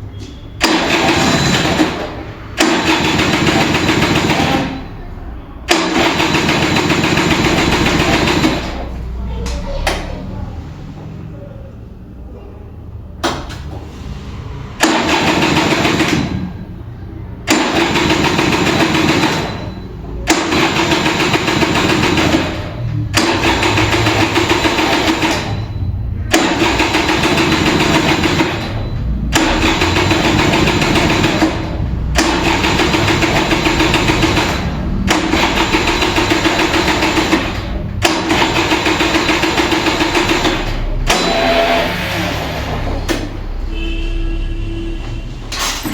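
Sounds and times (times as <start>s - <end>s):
scooter starter cranking: 17.4s - 42.0s.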